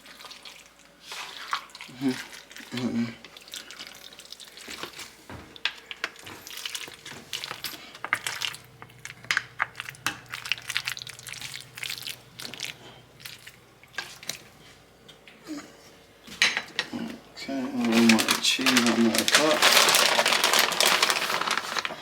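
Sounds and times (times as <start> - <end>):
plastic bag crinkling: 5.6 - 13.5, 17.7 - 22.0.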